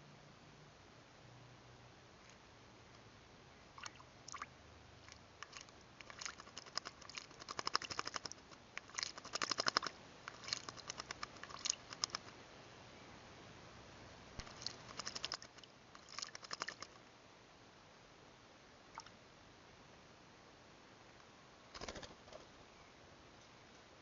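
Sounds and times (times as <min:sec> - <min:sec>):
bird splashing in water: 0:03.8 - 0:12.3, 0:14.4 - 0:16.9.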